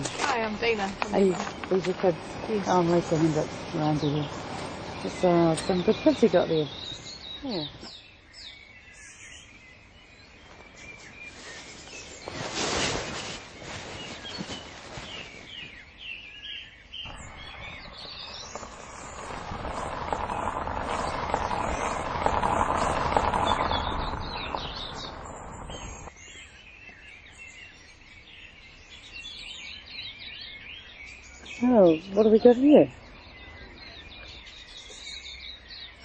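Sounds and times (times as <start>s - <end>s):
birds chirping: 0.0s - 36.0s
broad rushing noise: 1.5s - 5.6s, 17.1s - 26.1s.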